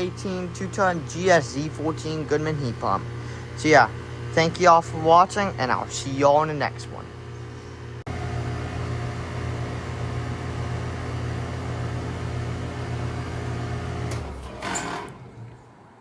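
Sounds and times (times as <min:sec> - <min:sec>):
heat pump humming: 0:00.0 - 0:16.0
heat pump click: 0:10.0 - 0:15.6.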